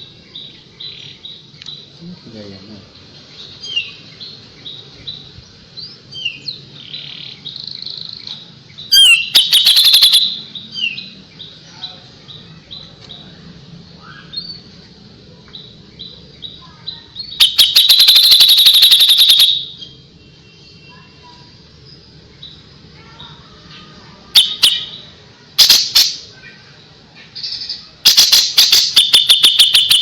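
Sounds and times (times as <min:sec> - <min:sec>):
songbird chirping: 0:00.0 - 0:30.0
bird rapid-fire note bursts: 0:08.9 - 0:10.6, 0:17.3 - 0:19.9, 0:24.4 - 0:26.3, 0:28.0 - 0:30.0.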